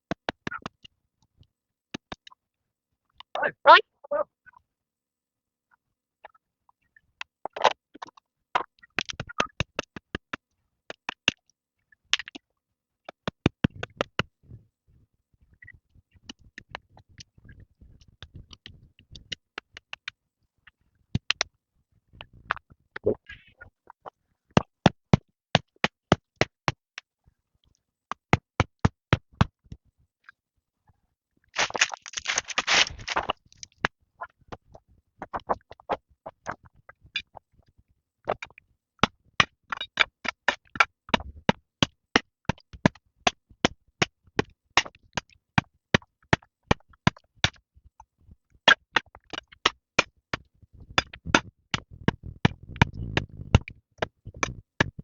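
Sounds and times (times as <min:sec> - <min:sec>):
brief rustling: 0:31.6 - 0:33.4.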